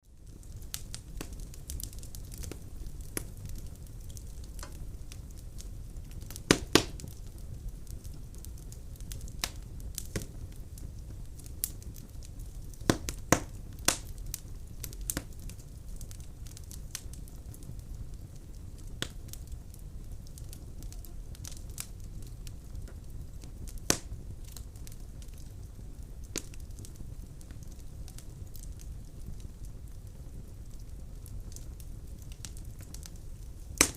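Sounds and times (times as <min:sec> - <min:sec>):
firewood crackling and popping: 0:00.0 - 0:33.9
low rumble of flames: 0:00.0 - 0:33.9
loud wood snaps: 0:06.5 - 0:07.0, 0:12.9 - 0:14.1, 0:23.9 - 0:24.1.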